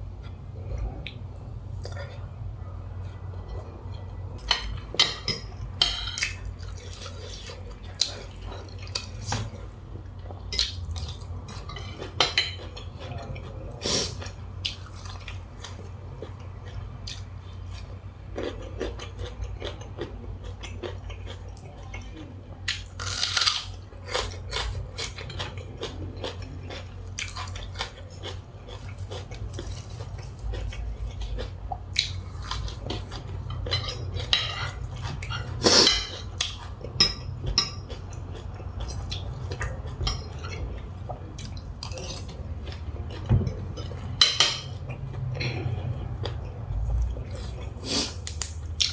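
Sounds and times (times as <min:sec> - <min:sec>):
steady low hum: 0:00.0 - 0:48.9
chewing: 0:03.0 - 0:48.9
utensils clinking on a plate: 0:04.4 - 0:06.4, 0:32.6 - 0:36.3, 0:37.0 - 0:38.0, 0:39.8 - 0:40.8, 0:43.1 - 0:44.8.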